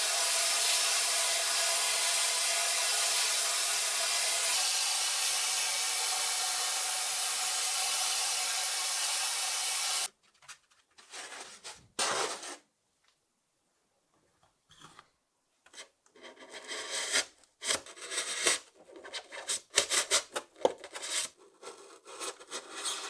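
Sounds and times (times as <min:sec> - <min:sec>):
workshop tool hissing: 0:00.0 - 0:10.1.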